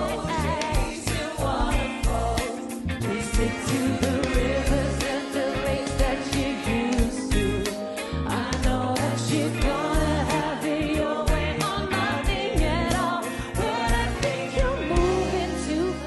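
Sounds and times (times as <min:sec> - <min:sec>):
bass line: 0:00.0 - 0:16.0
woman singing: 0:08.3 - 0:16.0.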